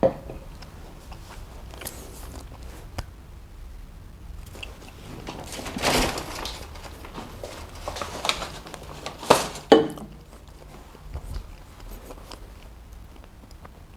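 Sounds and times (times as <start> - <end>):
objects knocking on table: 0.0 - 0.5
paper wrapper rustling: 4.5 - 12.5.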